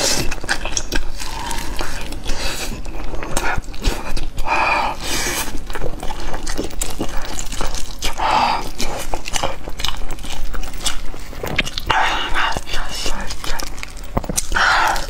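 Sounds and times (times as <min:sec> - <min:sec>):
chewing and wet mouth smacks: 0:00.0 - 0:15.0.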